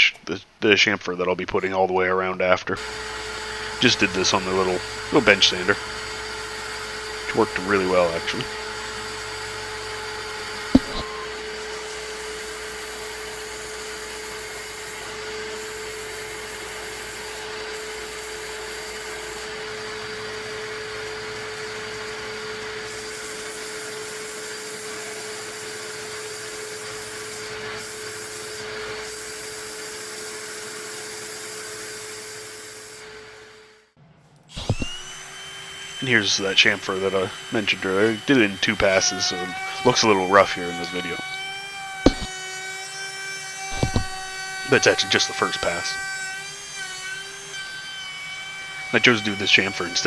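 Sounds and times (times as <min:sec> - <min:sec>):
bench sander whining: 0:34.6 - 0:35.4, 0:42.1 - 0:42.3, 0:43.8 - 0:45.9.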